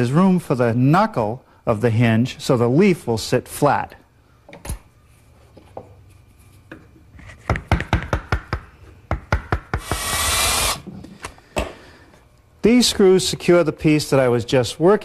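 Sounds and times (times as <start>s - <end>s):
mallet striking chisel: 7.5s - 10.4s
hissing whirring burst: 9.8s - 10.9s.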